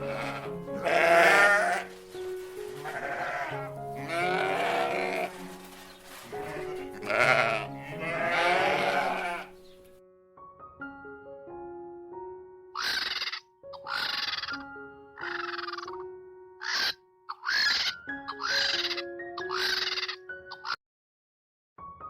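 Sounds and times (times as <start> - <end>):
wavering animal calls: 0.0 - 1.9, 2.7 - 5.6, 6.3 - 9.6, 12.8 - 20.8
background music: 0.0 - 20.8.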